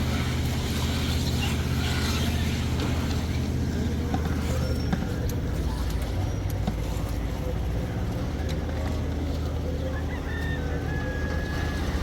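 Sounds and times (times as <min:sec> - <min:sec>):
engine running under load: 0:00.0 - 0:12.0
machinery clicks and creaks: 0:02.0 - 0:07.4.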